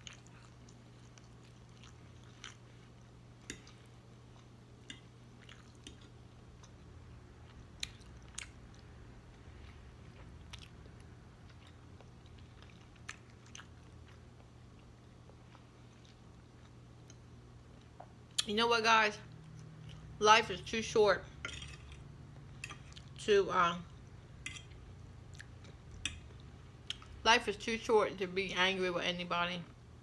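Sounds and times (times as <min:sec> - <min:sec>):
quiet chewing: 0:00.0 - 0:18.5, 0:19.3 - 0:20.2, 0:23.9 - 0:27.2.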